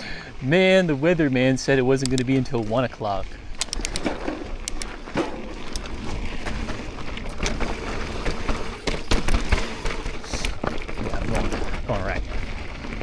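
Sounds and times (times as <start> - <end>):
bike rattling and clacking: 1.9 - 13.0
tyre rumble on trail: 2.6 - 13.0.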